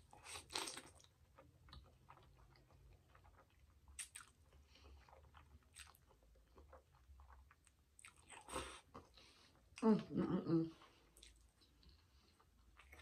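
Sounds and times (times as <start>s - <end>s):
wet chewing clicks: 0.2s - 8.5s.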